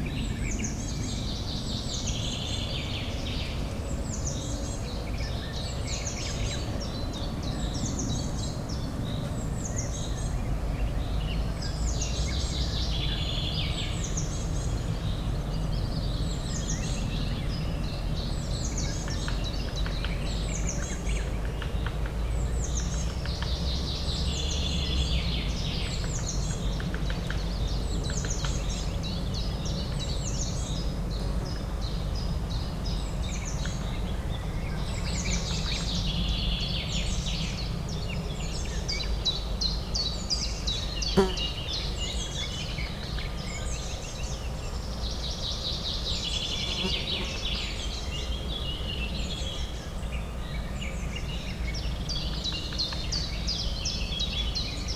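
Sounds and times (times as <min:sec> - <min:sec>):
songbirds chirping: 0:00.0 - 0:54.9.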